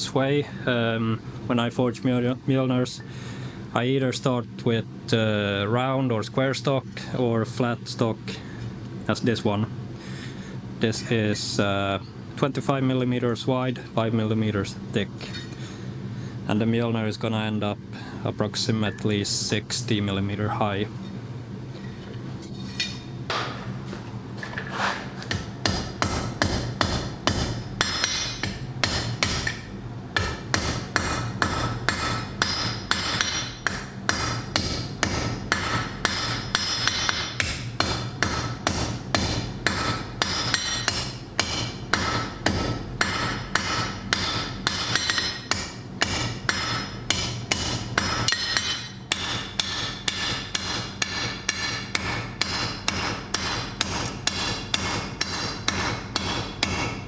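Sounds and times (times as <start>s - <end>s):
hammer striking steel on anvil: 25.3s - 57.0s.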